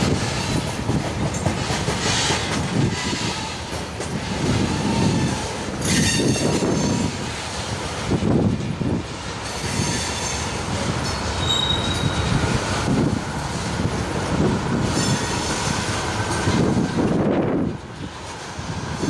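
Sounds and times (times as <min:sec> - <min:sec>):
train wheels rumbling on rail: 0:00.0 - 0:19.0
high wheel squeal: 0:04.4 - 0:07.2, 0:09.5 - 0:12.5, 0:14.8 - 0:15.8.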